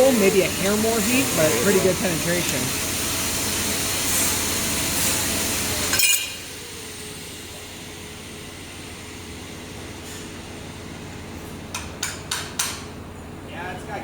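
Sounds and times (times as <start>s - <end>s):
machine hum: 0.0s - 5.8s
laser welder hissing: 0.0s - 7.0s.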